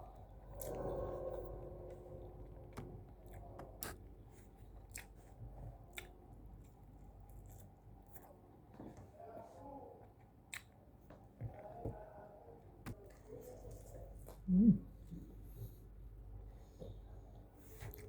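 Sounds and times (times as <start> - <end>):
person chewing food: 2.7 - 8.3.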